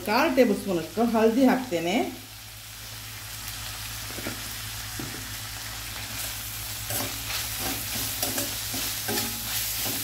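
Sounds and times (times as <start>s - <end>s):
vegetables sizzling in oil: 0.0s - 10.0s
spoon scraping a pan: 6.2s - 10.0s.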